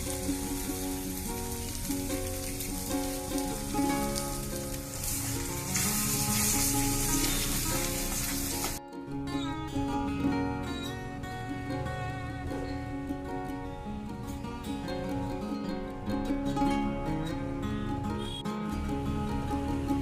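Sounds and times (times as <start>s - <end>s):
food sizzling in a pan: 0.0s - 8.8s
background music: 0.0s - 20.0s.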